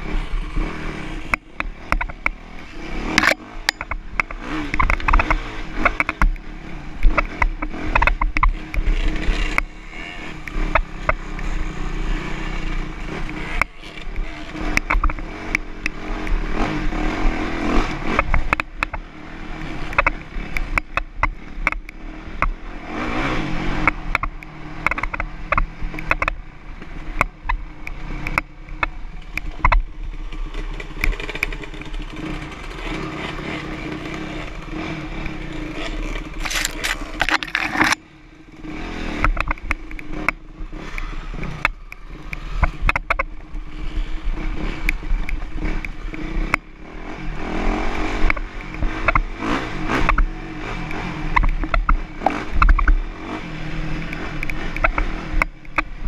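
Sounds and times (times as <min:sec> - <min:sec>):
dirt bike engine revving: 0:00.0 - 0:20.5, 0:21.4 - 0:25.8, 0:30.3 - 0:42.9, 0:43.7 - 0:55.4
sharp clicks and rattles: 0:03.1 - 0:06.4, 0:07.0 - 0:09.7, 0:23.8 - 0:33.0, 0:36.2 - 0:38.1, 0:39.2 - 0:40.4, 0:48.2 - 0:49.3.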